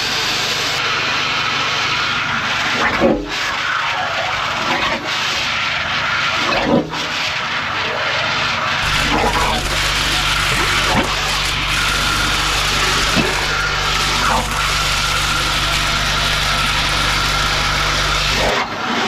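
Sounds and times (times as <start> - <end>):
vacuum unit running: 8.8 - 18.8.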